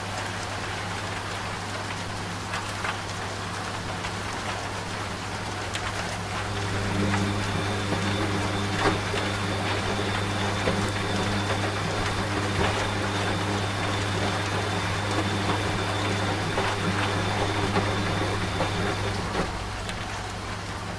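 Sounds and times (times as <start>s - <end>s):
rain falling in small drops: 0.0s - 20.9s
washing machine humming: 3.9s - 20.9s
faint high whine: 6.4s - 19.5s.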